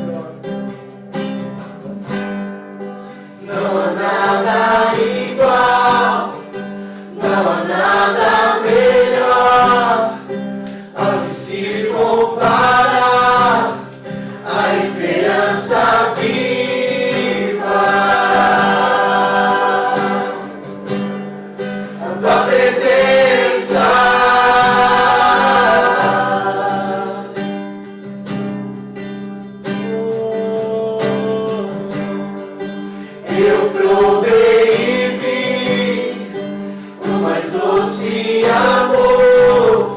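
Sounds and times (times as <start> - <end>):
strummed acoustic guitar: 0.0 - 39.9
group singing worship song: 3.0 - 27.7, 32.9 - 39.9.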